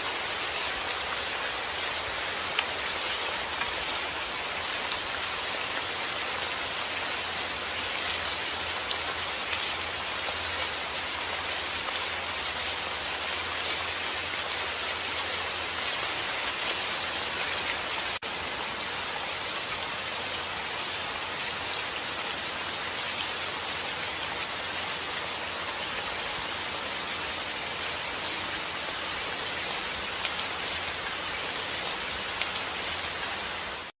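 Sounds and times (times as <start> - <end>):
steady rain hiss: 0.0 - 33.9
raindrops pattering on a surface: 0.1 - 22.1, 29.3 - 33.9.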